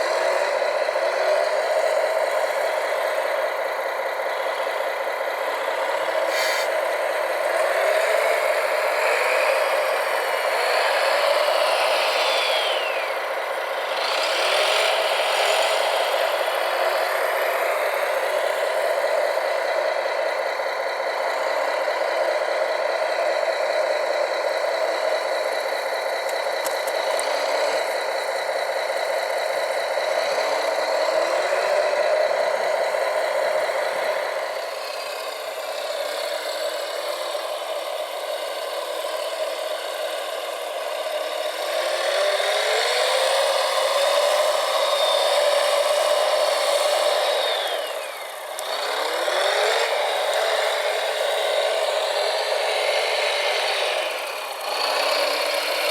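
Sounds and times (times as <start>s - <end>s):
small motors and gearboxes whining: 0.0s - 55.9s.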